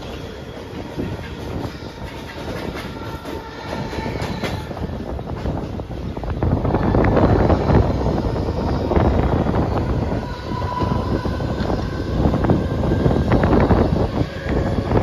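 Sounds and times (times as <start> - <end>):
train clattering over joints: 0.0 - 6.5
train wheels rumbling on rails: 0.0 - 15.0.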